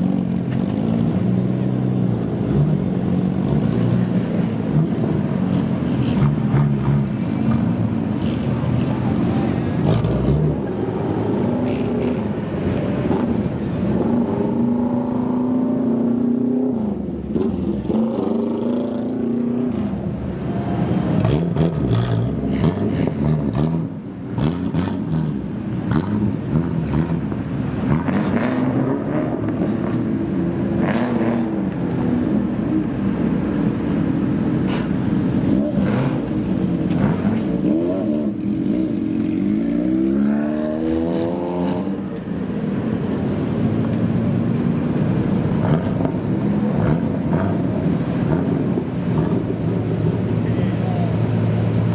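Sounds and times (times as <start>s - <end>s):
car engine revving: 0.2s - 20.2s.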